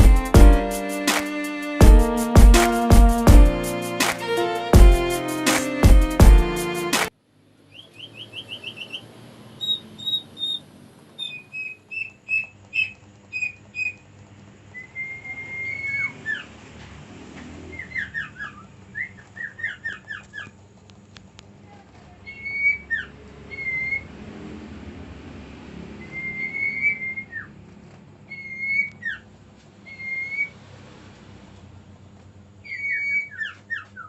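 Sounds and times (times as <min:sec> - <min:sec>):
bird whistling and chirping: 0:07.7 - 0:14.0, 0:14.8 - 0:16.4, 0:22.3 - 0:24.0, 0:26.0 - 0:27.5, 0:28.3 - 0:29.2, 0:29.9 - 0:30.5, 0:32.6 - 0:34.0.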